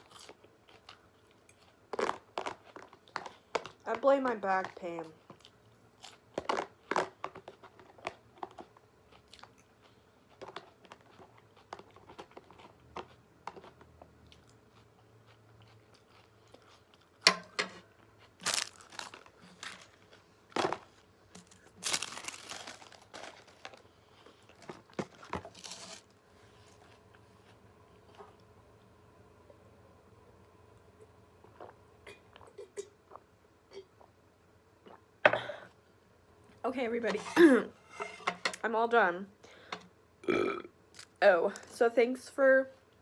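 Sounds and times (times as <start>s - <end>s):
chewing and crunching food: 0.0s - 28.5s, 31.0s - 34.2s, 40.9s - 41.8s
crinkling bursts: 18.4s - 23.9s.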